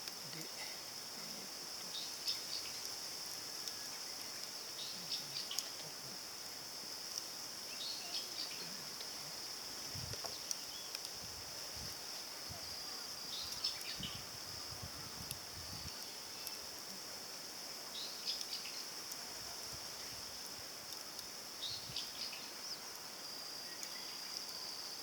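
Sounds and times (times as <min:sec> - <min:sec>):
faint clicks and ticks: 0:00.0 - 0:00.8, 0:02.7 - 0:04.6, 0:10.0 - 0:11.2, 0:20.8 - 0:21.4, 0:22.8 - 0:23.1
insects trilling: 0:00.0 - 0:25.0.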